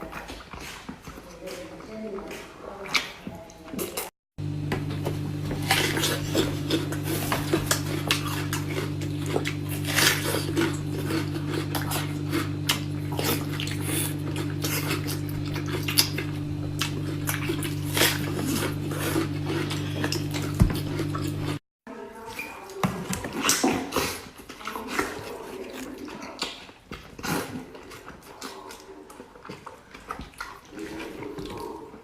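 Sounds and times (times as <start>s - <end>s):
steady low hum: 4.4s - 21.6s.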